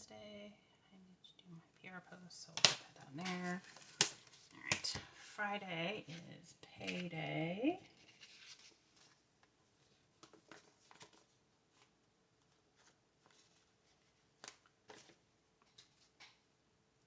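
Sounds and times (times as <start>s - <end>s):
paper ticks and rustles: 2.6s - 5.0s, 6.8s - 7.1s, 8.0s - 16.4s.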